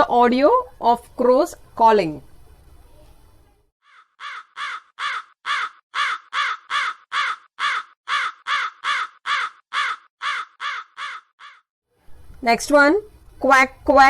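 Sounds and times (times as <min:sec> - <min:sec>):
crow cawing: 0:03.8 - 0:11.7.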